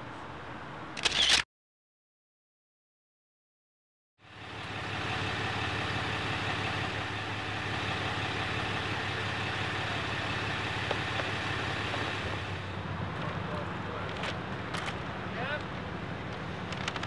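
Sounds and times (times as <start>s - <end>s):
vehicle engine idling: 4.2s - 17.0s.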